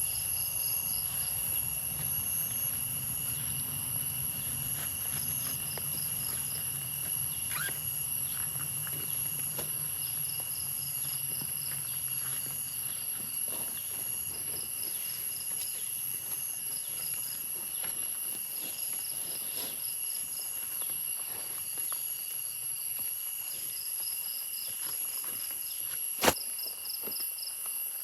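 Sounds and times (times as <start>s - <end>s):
insects droning: 0.0s - 28.0s
rapid insect chirping: 0.0s - 28.0s.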